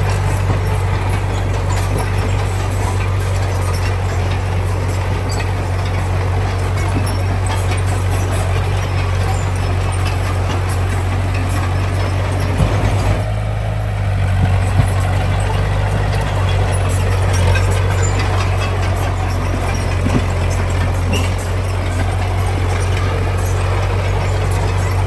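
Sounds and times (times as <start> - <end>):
heavy diesel engine humming: 0.0 - 25.0.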